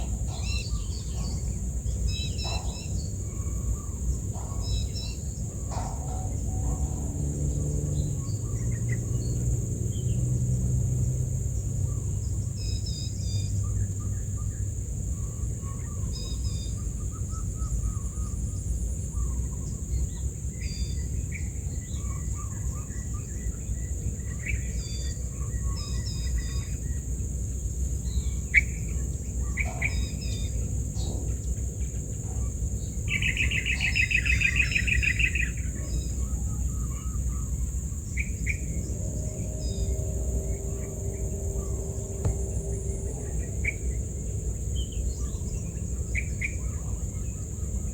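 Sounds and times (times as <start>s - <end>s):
small birds chirping: 0.0s - 47.9s
low rumble: 37.3s - 47.6s
high insect buzz: 38.0s - 45.9s.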